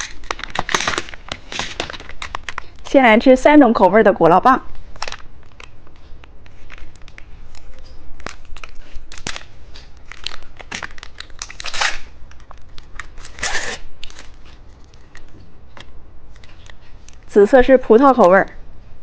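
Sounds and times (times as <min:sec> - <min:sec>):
wrapper ripping: 0:00.0 - 0:02.8, 0:06.5 - 0:15.3
plastic wrappers crinkling: 0:00.0 - 0:03.0, 0:04.8 - 0:17.4.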